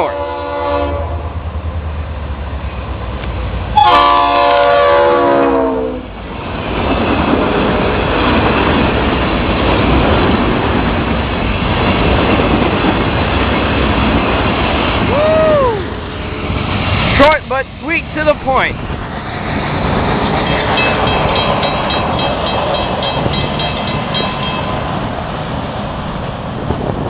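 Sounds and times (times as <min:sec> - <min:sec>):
locomotive air horn blasts: 0:00.0 - 0:01.2, 0:03.8 - 0:06.1
train cars rumbling past: 0:00.0 - 0:27.0.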